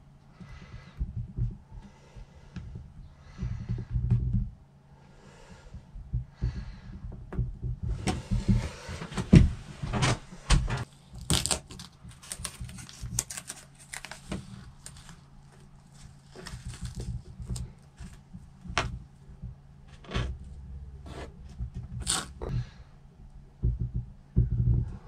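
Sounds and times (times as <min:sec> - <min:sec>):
tape rustling: 0:08.0 - 0:22.5.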